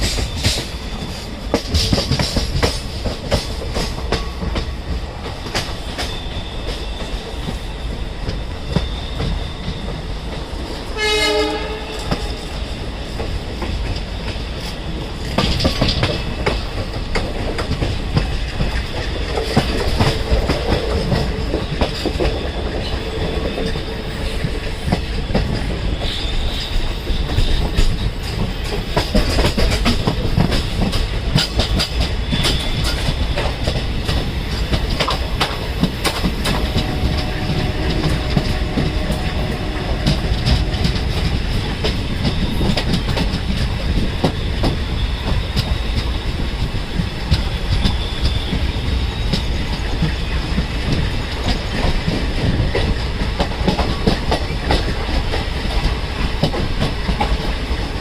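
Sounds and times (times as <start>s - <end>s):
train wheels clattering over rail joints: 0.0s - 58.0s.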